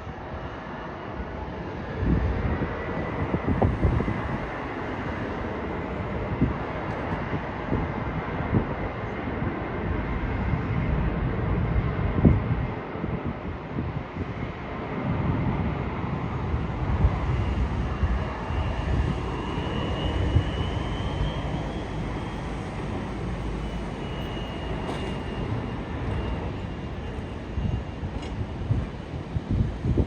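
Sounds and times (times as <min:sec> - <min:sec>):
aircraft engines passing: 0:00.0 - 0:30.0
faint high whine: 0:16.9 - 0:29.2.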